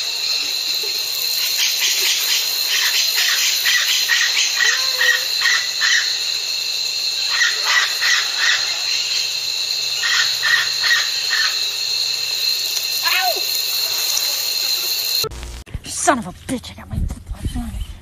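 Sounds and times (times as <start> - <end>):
steady high-pitched tone: 9.0 - 15.6.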